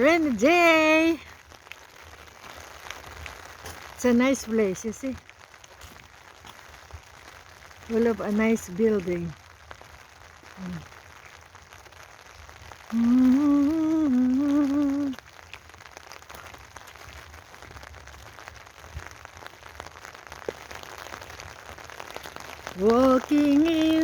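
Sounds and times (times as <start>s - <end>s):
rain falling: 0.0s - 24.0s
person humming a tune: 12.9s - 15.2s.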